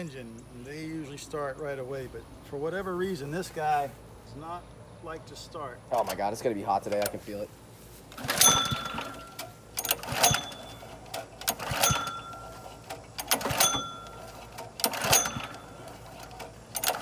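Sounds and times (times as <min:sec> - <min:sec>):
pull-cord starter rattling: 0:05.9 - 0:07.5, 0:08.1 - 0:17.0.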